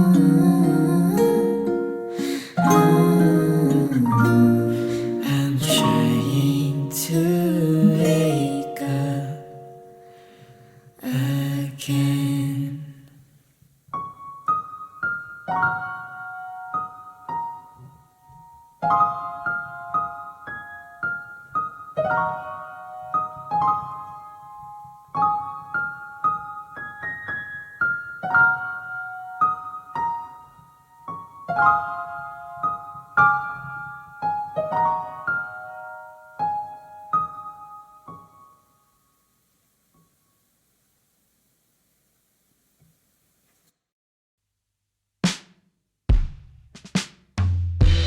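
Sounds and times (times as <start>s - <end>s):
solo piano slow chords: 0.0s - 12.7s, 14.0s - 38.6s.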